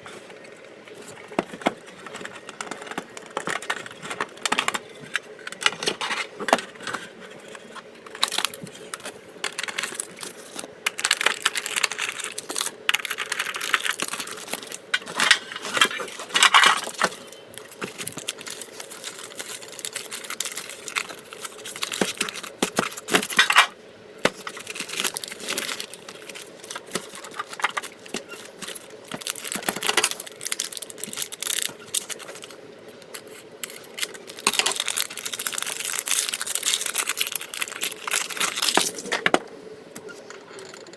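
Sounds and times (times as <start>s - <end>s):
foil wrappers crinkling: 0.4s - 39.3s.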